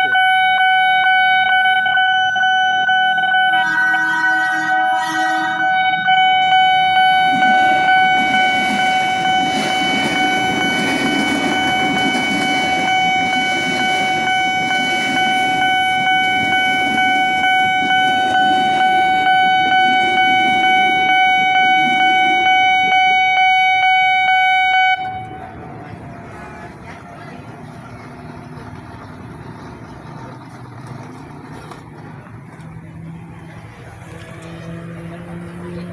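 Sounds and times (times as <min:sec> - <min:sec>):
train horn: 0:00.0 - 0:25.5
train rumbling past: 0:00.0 - 0:35.9.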